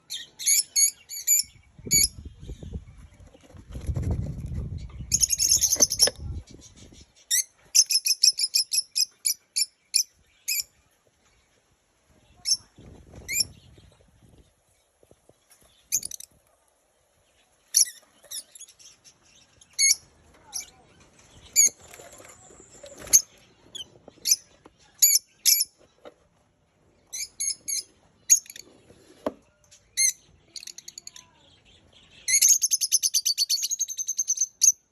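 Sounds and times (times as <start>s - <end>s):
lovebirds chirping: 0.0s - 34.9s
wings fluttering: 3.0s - 7.0s, 20.4s - 24.3s.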